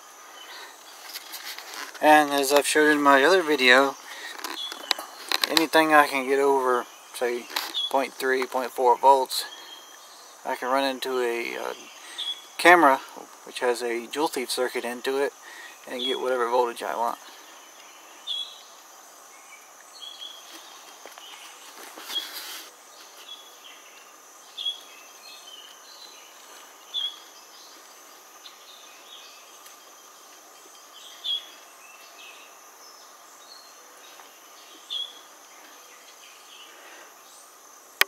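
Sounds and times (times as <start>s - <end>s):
insects droning: 0.0s - 38.0s
bird chirping: 0.3s - 14.5s, 15.3s - 37.6s.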